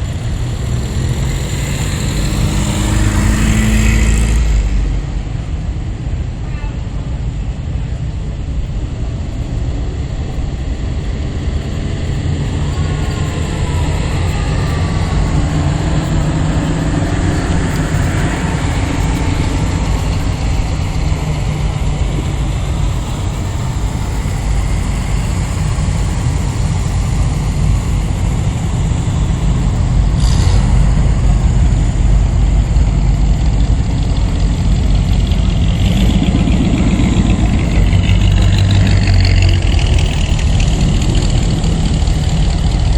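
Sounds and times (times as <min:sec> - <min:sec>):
cars passing at low speed: 0:00.0 - 0:42.9.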